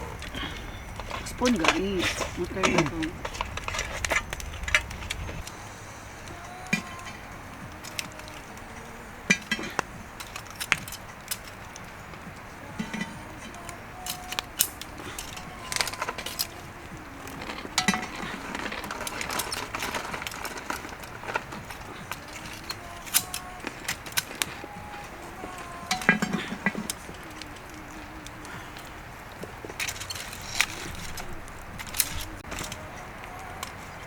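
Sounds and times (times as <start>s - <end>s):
spoons clinking against dishes: 5.4s - 34.0s.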